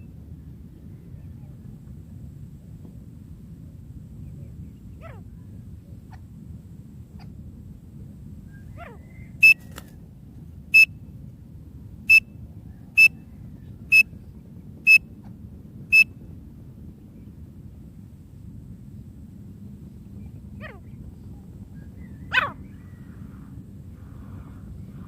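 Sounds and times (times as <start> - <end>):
francolin whistled calls: 8.5 - 9.8, 12.9 - 13.3, 13.9 - 14.1.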